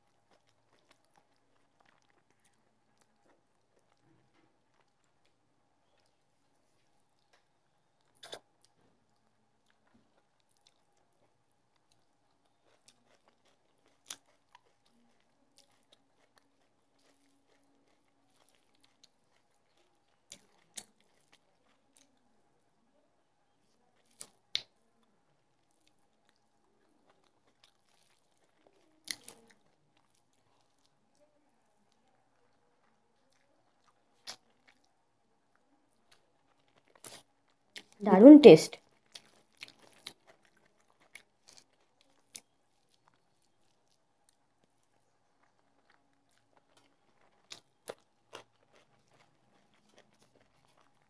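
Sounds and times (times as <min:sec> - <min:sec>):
person chewing: 0:00.0 - 0:22.2, 0:25.6 - 0:34.9, 0:35.9 - 0:38.0, 0:38.8 - 0:51.0
mouth clicks and smacks: 0:08.2 - 0:08.5.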